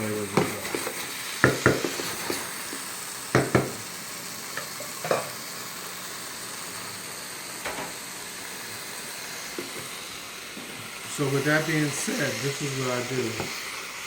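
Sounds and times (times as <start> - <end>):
food sizzling on stovetop: 0.0 - 14.0
utensil knocking against pan: 1.4 - 2.0, 3.3 - 3.8.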